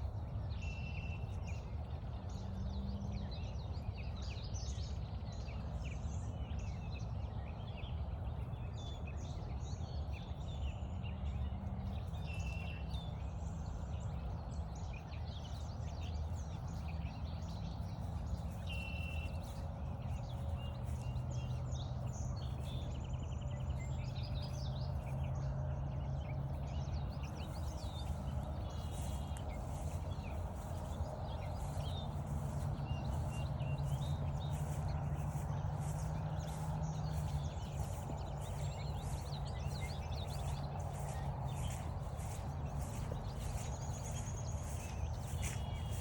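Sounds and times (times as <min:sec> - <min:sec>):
birdsong chirps: 0:00.0 - 0:46.0
steady low hum: 0:11.2 - 0:46.0
footsteps on a trail: 0:15.3 - 0:46.0.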